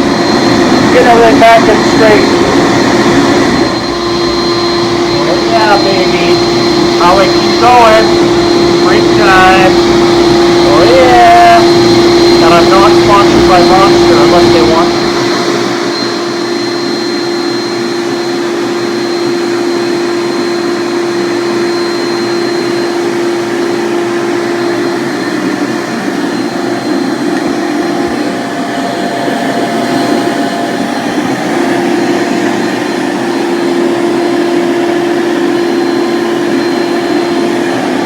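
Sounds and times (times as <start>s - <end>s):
electric motor whirring: 0.0s - 20.6s.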